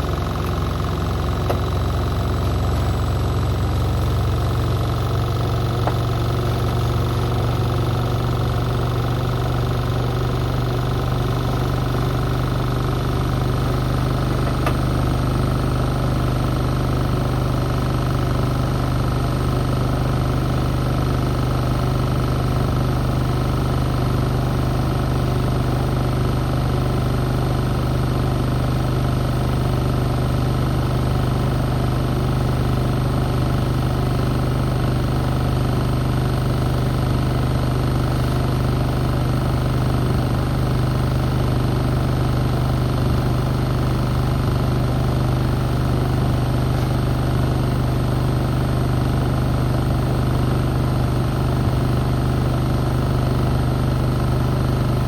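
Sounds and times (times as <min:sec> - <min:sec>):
washing machine motor humming: 0:00.0 - 0:17.1.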